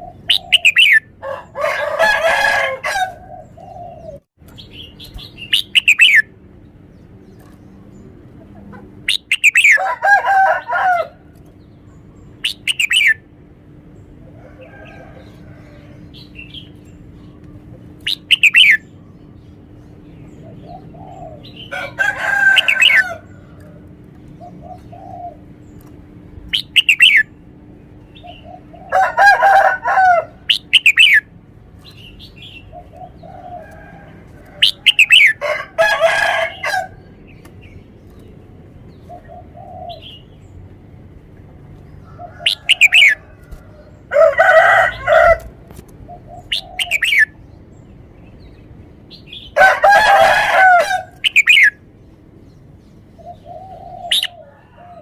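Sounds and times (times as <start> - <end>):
bird singing: 0.0 - 45.4, 46.0 - 55.0.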